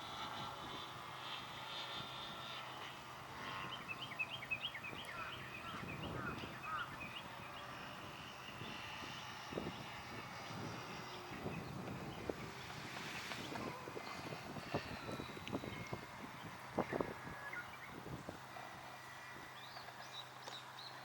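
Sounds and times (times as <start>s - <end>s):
wind noise on microphone: 0.0s - 19.8s
distant model aircraft motor drone: 0.0s - 21.0s
bird chirping: 3.4s - 9.2s, 10.4s - 18.1s.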